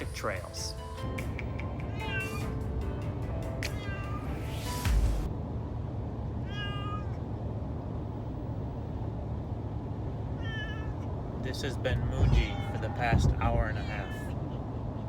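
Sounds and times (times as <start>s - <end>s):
moving car rumble: 0.0s - 15.0s
cat meowing: 1.6s - 2.7s, 3.5s - 4.7s, 6.4s - 7.2s, 10.3s - 11.1s, 12.0s - 14.6s
heavy thump: 12.0s - 13.8s.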